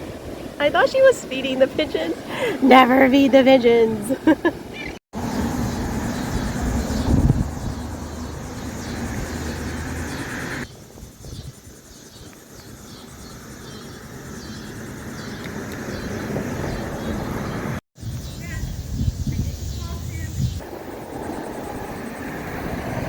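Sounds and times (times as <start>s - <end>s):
low engine-like hum: 5.2s - 10.6s.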